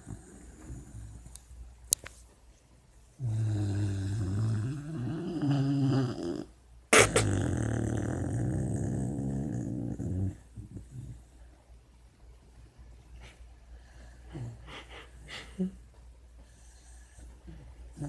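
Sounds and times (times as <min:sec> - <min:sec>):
puppy snoring: 0:00.0 - 0:01.4, 0:03.2 - 0:11.4.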